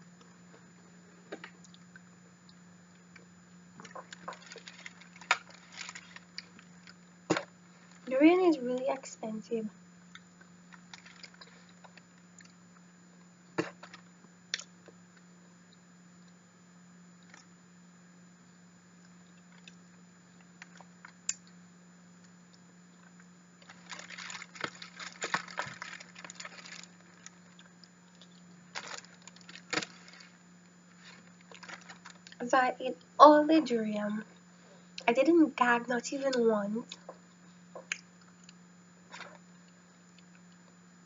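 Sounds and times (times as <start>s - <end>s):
steady low hum: 0.0s - 41.0s
dense crackling and clicking: 1.4s - 9.2s, 10.2s - 12.8s, 23.0s - 34.1s
eating soft fruit: 22.2s - 32.4s, 36.3s - 40.8s.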